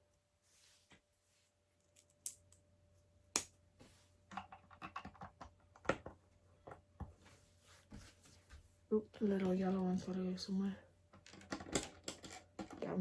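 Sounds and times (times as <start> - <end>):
plastic toy bricks clicking: 11.2 - 12.9.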